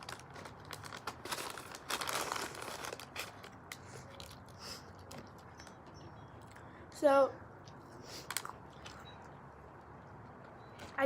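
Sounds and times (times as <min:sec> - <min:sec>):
paper wrapping crinkling: 0:00.0 - 0:05.5.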